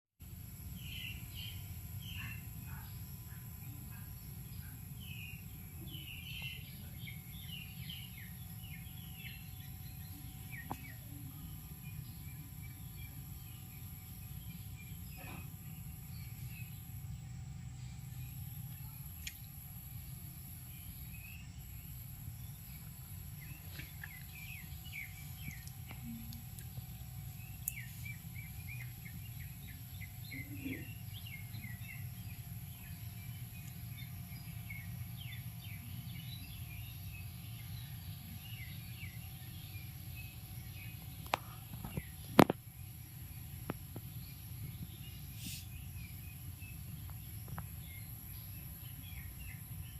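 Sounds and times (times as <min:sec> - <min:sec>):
birds chirping: 0:00.7 - 0:49.9.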